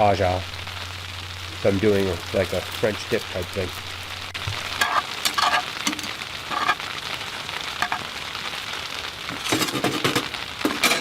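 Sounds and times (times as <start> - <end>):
food sizzling in a pan: 0.0 - 11.0
utensil stirring and knocking pan: 4.4 - 6.8, 7.8 - 8.1, 9.4 - 11.0.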